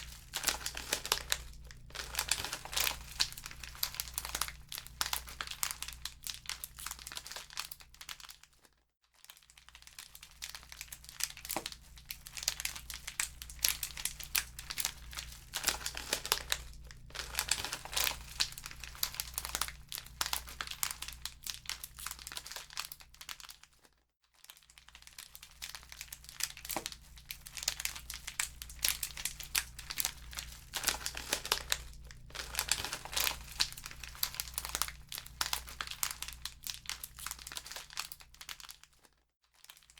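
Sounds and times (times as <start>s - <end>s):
low steady rumble: 0.0s - 5.9s, 12.0s - 21.4s, 27.1s - 36.9s
wood fire crackling and popping: 0.0s - 6.1s, 12.3s - 21.3s, 26.0s - 38.1s.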